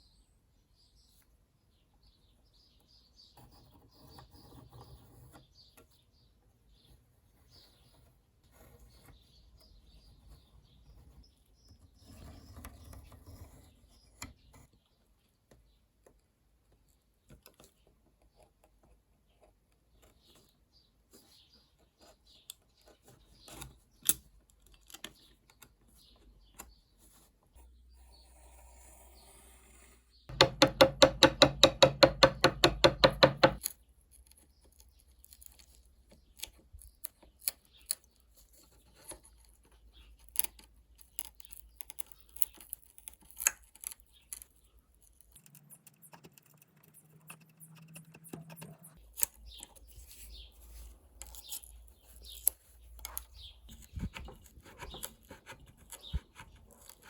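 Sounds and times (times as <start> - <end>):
clicks and taps on a knife: 30.3 - 33.8.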